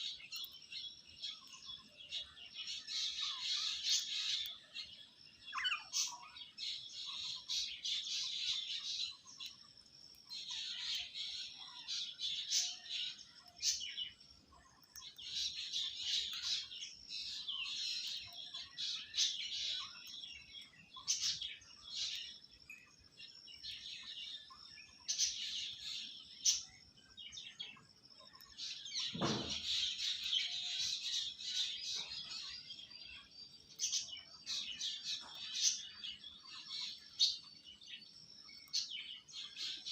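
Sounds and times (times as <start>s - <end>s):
parrots chirping and twittering: 0.0s - 39.9s.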